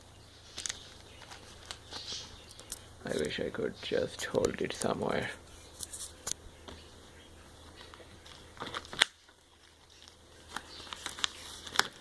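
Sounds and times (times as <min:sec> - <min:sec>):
cardboard and plastic rustling: 0:00.4 - 0:03.4, 0:07.6 - 0:12.0
packaging clicks: 0:00.6 - 0:03.3, 0:07.8 - 0:12.0.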